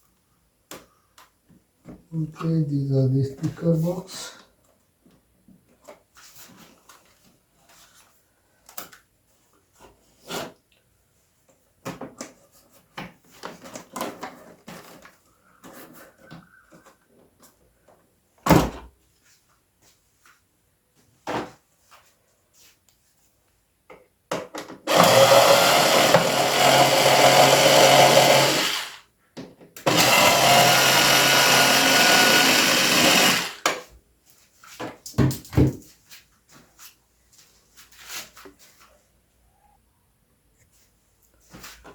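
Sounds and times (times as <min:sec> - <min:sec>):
handheld electric tool running: 0:24.9 - 0:29.0, 0:29.8 - 0:33.7.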